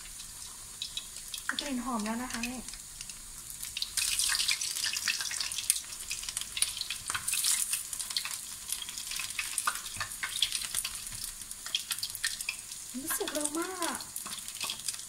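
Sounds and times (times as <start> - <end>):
fritters sizzling in hot oil: 0.0 - 15.0
slotted spoon turning fritters: 3.0 - 15.0.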